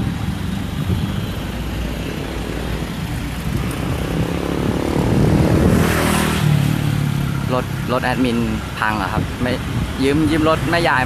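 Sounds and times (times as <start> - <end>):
car engines in slow traffic: 0.0 - 11.0
engine revving up: 0.4 - 8.2.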